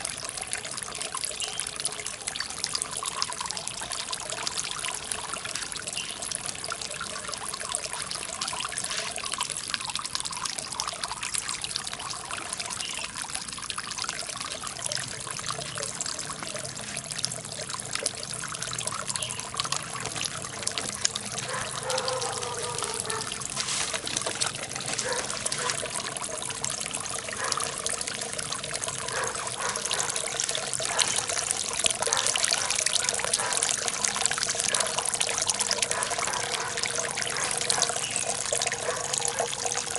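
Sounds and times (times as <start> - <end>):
fountain water splashing into pond: 0.0 - 39.9.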